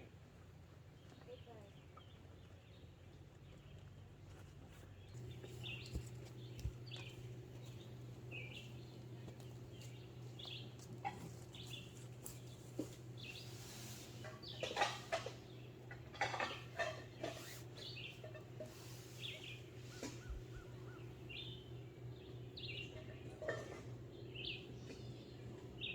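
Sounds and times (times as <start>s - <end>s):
steady low hum: 4.8s - 25.9s
bird chirping: 5.1s - 23.2s.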